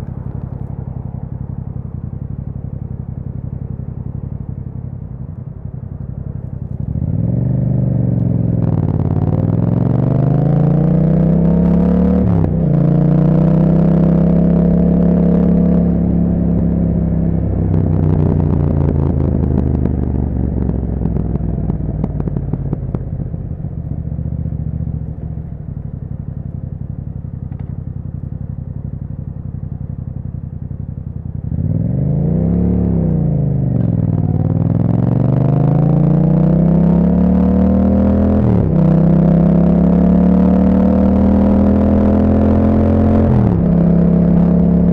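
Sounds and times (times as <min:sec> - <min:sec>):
exhaust crackles: 0:00.0 - 0:44.9
motorcycle engine revving: 0:00.0 - 0:44.9.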